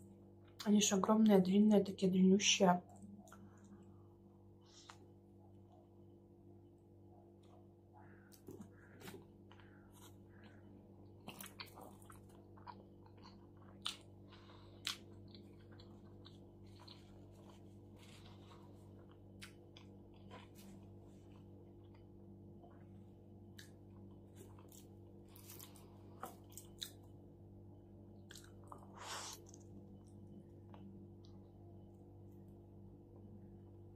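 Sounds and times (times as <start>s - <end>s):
faint steady hum: 0.0s - 33.9s
person chewing food: 7.4s - 27.3s, 28.2s - 31.5s.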